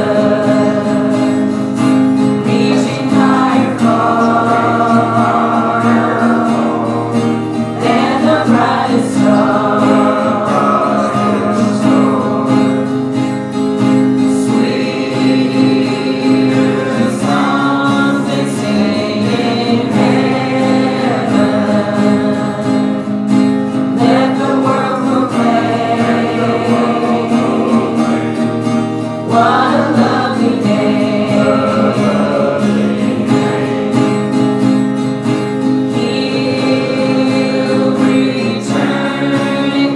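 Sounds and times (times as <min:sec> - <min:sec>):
congregation singing a hymn: 0:00.0 - 0:39.9
guitar: 0:00.0 - 0:39.9.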